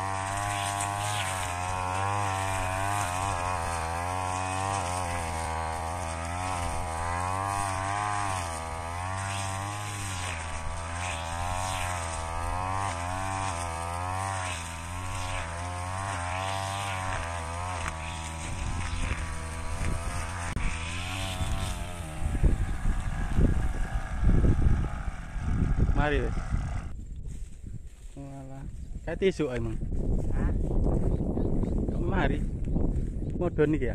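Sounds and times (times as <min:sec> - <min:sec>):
brush cutter engine running: 0:00.0 - 0:27.0.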